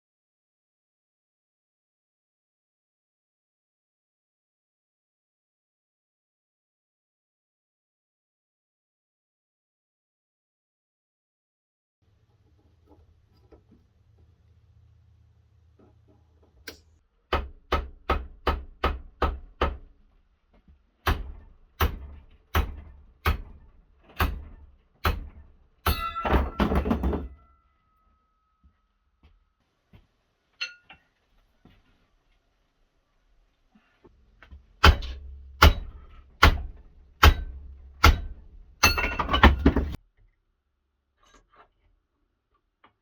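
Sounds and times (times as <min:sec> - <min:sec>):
hammer striking metal: 0:21.0 - 0:23.6, 0:24.2 - 0:27.5, 0:34.8 - 0:40.0
metallic ring: 0:25.9 - 0:28.6, 0:30.6 - 0:30.9, 0:38.8 - 0:39.6.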